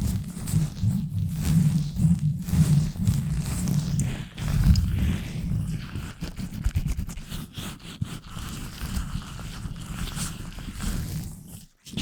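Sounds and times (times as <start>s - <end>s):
gloved hands rubbing microphone: 0.0s - 12.0s.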